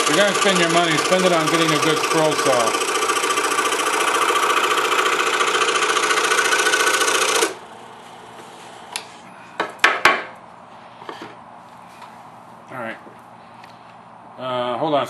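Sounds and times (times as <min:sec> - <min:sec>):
scroll saw running: 0:00.0 - 0:08.0.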